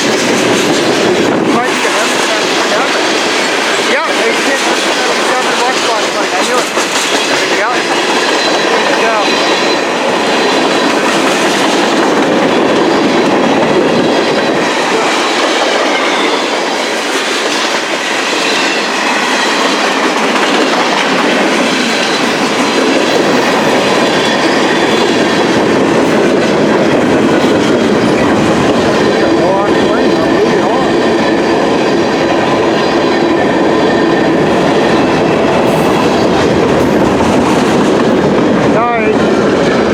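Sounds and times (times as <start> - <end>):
freight wheels clattering on rails: 0.0 - 39.9.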